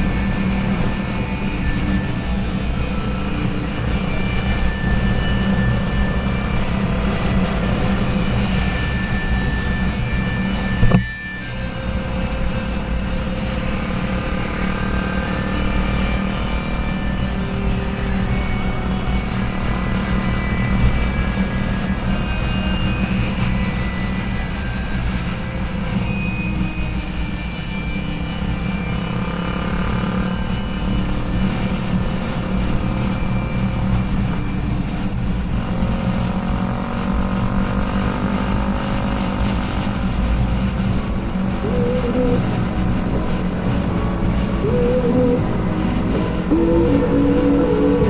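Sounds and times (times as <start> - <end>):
faint wavering tones: 0.0 - 36.4, 38.3 - 48.0
wind and road noise: 0.0 - 48.0
motorcycle engine running: 28.1 - 48.0.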